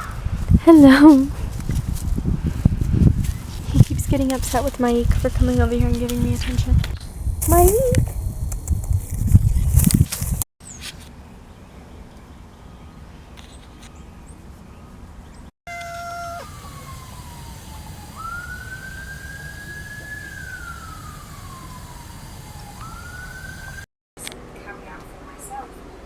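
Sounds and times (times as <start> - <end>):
emergency vehicle siren wailing: 15.7 - 23.9.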